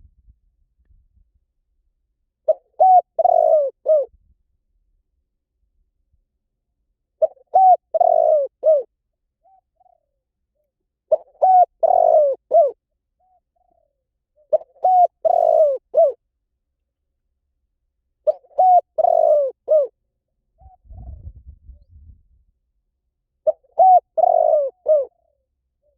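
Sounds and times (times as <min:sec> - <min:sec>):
dove cooing: 0:02.5 - 0:04.1, 0:07.2 - 0:10.2, 0:11.1 - 0:16.2, 0:18.2 - 0:20.0, 0:20.6 - 0:21.3, 0:23.4 - 0:25.9.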